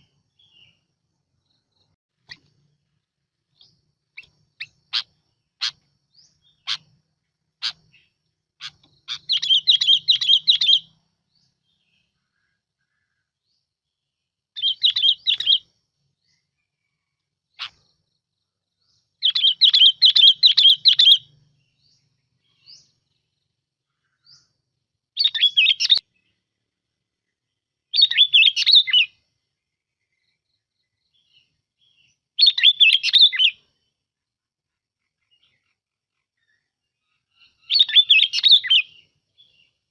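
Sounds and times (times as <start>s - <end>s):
bulbul song: 0.0s - 13.0s, 14.6s - 16.6s, 17.5s - 23.6s, 25.2s - 26.4s, 27.8s - 29.4s, 30.1s - 33.9s, 37.4s - 39.9s.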